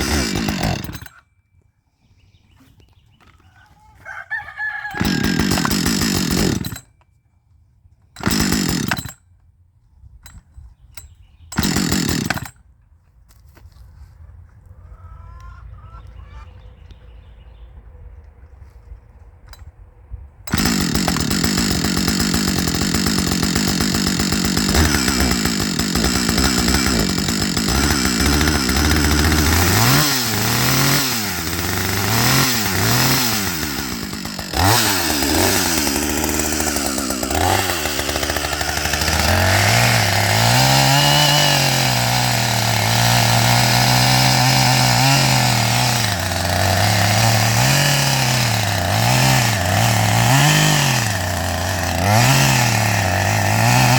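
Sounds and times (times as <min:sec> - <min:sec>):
chainsaw revving: 0:00.0 - 0:01.2, 0:04.6 - 0:06.9, 0:08.2 - 0:09.2, 0:11.5 - 0:12.6, 0:20.5 - 0:53.9.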